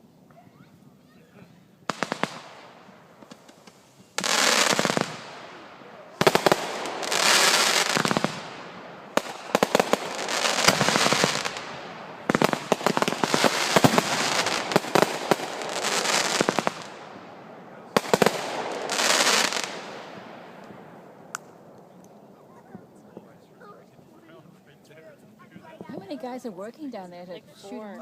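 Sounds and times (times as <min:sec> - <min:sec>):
fireworks bangs: 0:01.8 - 0:23.6
fireworks crackling: 0:01.8 - 0:27.0.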